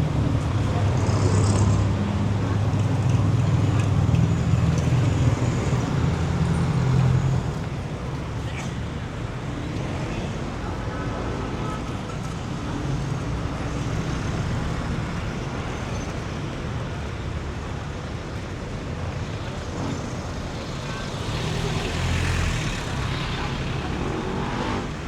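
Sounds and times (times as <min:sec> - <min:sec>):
traffic road noise: 0:00.0 - 0:25.0
vehicle passing close: 0:00.5 - 0:02.9.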